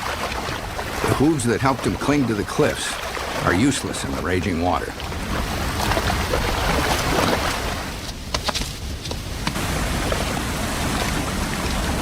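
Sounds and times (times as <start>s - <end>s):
sharp splashes: 0.0s - 8.0s
river rushing: 0.0s - 12.0s.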